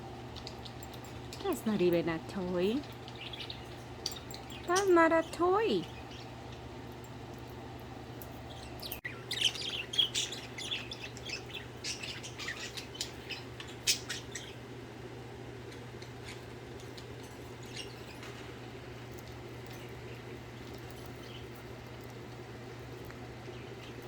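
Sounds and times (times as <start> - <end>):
steady low hum: 0.0 - 24.0
budgerigars chirping: 8.5 - 14.6.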